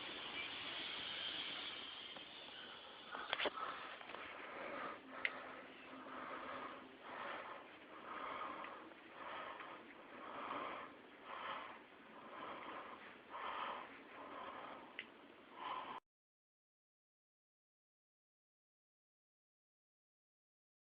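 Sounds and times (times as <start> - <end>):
breathing or sniffing: 3.0 - 15.0.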